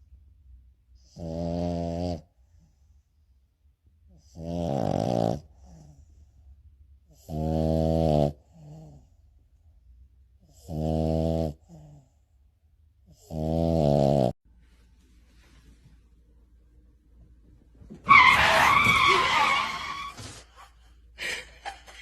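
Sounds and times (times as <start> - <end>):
pet snoring loudly: 1.0 - 2.3, 4.3 - 5.9, 7.1 - 9.0, 10.5 - 12.0, 13.1 - 14.4.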